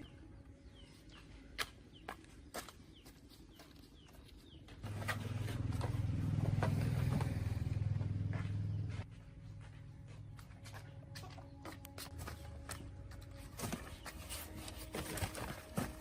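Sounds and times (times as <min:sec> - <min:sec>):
engine running: 0:04.7 - 0:14.0.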